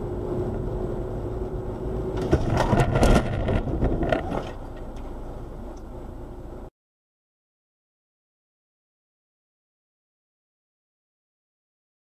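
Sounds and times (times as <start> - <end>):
car road noise: 0.0 - 6.7
car collision bangs and crunches: 2.2 - 4.7.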